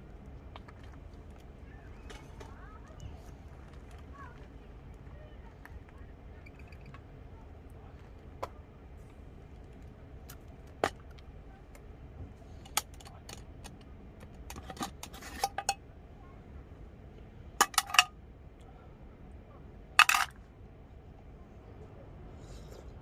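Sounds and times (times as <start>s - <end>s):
metal utensils clinking on cookware: 14.5s - 15.8s, 17.6s - 18.1s, 20.0s - 20.3s.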